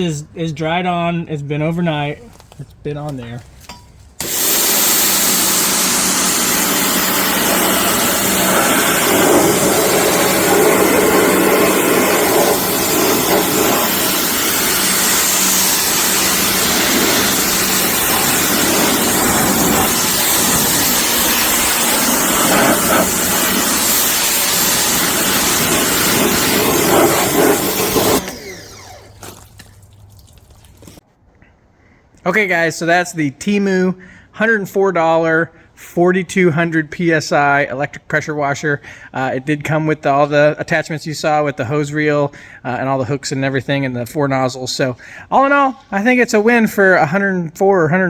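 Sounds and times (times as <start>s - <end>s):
pressure washer jet hissing: 4.2s - 29.7s
pressure washer motor hum: 4.2s - 30.0s.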